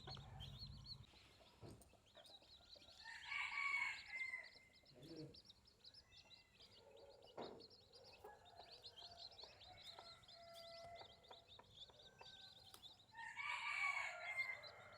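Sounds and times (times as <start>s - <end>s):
chickens clucking: 0.0s - 14.9s
small birds chirping rapidly: 0.0s - 14.9s
rooster crowing: 3.0s - 4.5s, 13.2s - 14.9s.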